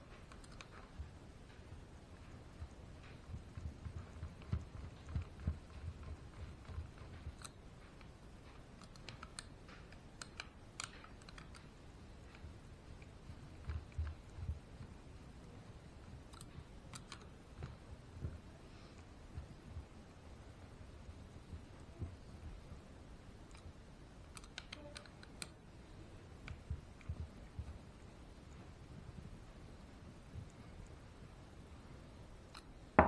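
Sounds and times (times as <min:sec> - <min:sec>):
small parts clicking and tapping: 0:00.0 - 0:25.6.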